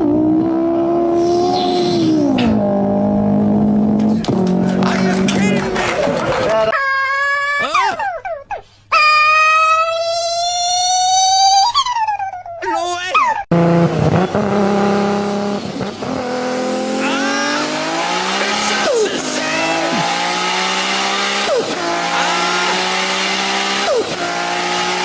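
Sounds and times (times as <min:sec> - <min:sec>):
race car engine accelerating: 0:00.0 - 0:06.7, 0:13.5 - 0:25.0.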